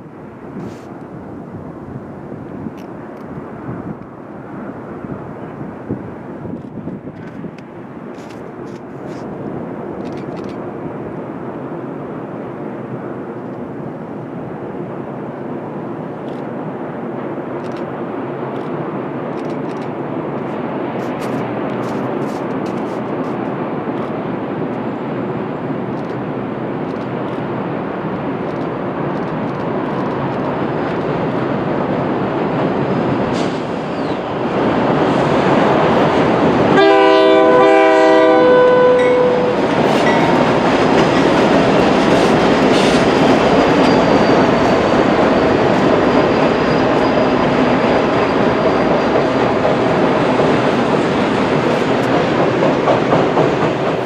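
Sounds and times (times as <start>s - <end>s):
train wheels rumbling on rails: 0.0s - 54.0s
locomotive air horn blast: 36.7s - 40.2s.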